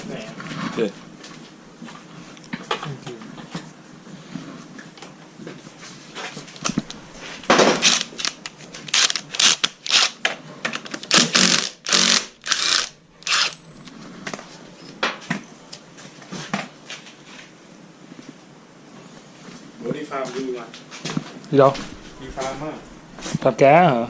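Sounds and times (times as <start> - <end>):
power tool bursts: 7.5 - 10.2, 11.1 - 13.6.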